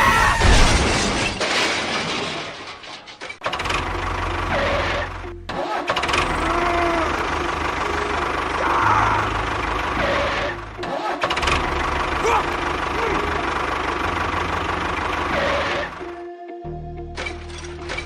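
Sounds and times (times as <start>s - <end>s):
engine starting: 2.9s - 8.6s, 9.3s - 16.1s
engine running: 3.4s - 16.3s.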